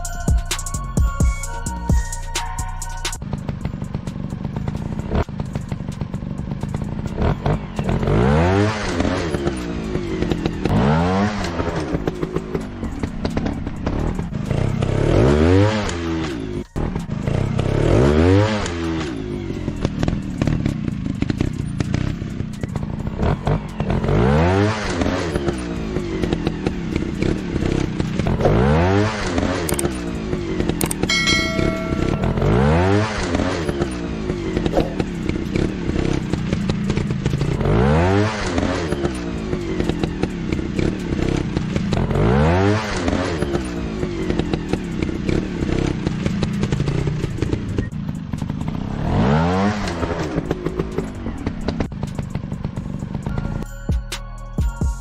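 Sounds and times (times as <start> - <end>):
trail-bike engines revving: 3.2 - 53.6
short tone: 31.1 - 33.8.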